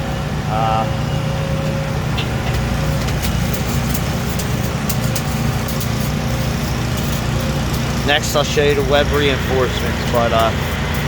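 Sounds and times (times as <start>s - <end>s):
engine droning steadily: 0.0s - 11.0s
sharp ticks: 2.5s - 11.0s.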